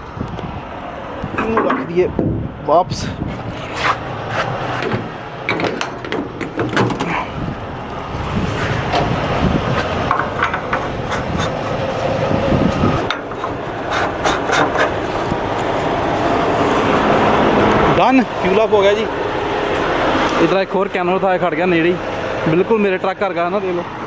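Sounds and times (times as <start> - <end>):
engines and traffic hum: 0.0 - 24.0
clicks and knocks at fuel pump: 8.9 - 11.8.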